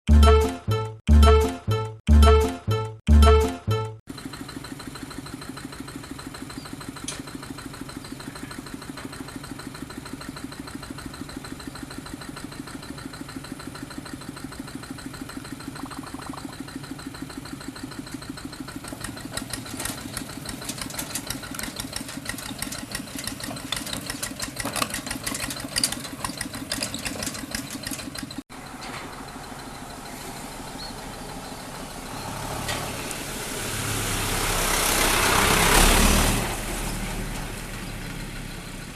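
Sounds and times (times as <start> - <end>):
combine harvester engine chugging: 4.0 - 32.4.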